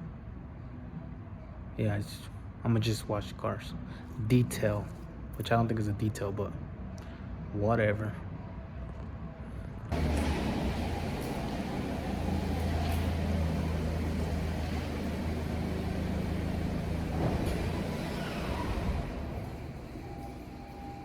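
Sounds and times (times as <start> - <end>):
car engine humming: 9.9 - 21.0.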